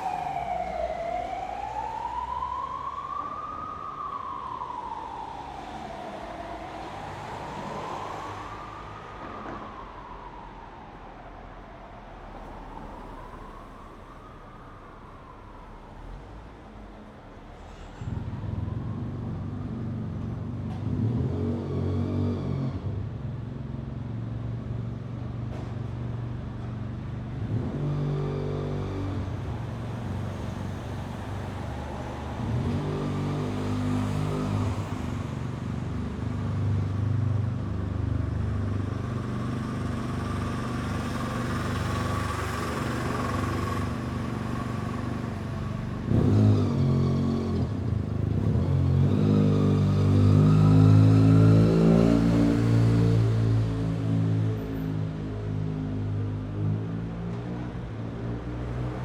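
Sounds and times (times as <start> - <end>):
road noise: 0.0 - 59.0
cars passing: 3.4 - 11.0, 27.4 - 59.0
loud vehicle passing: 30.0 - 55.0.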